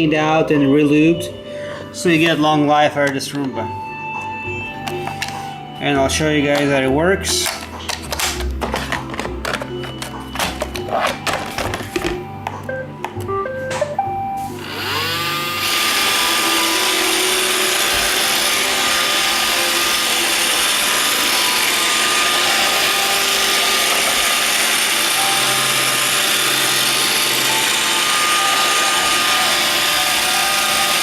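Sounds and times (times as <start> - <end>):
robot vacuum start-up tune: 13.3 - 31.0
robot vacuum motor whine: 14.4 - 31.0.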